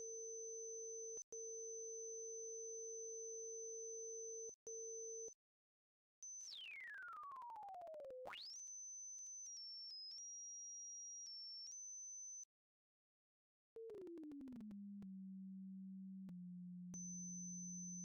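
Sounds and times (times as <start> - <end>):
steady low sine tone: 14.8 - 18.0.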